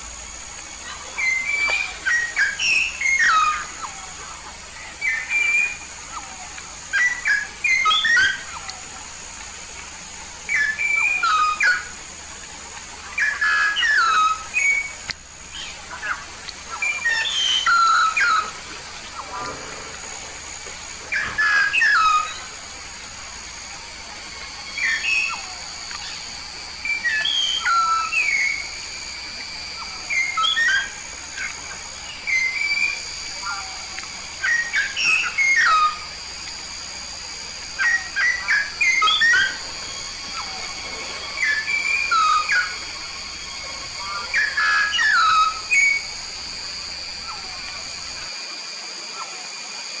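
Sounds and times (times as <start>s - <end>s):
steady high-pitched tone: 0.0s - 48.5s
myna singing whistled notes: 20.4s - 48.3s.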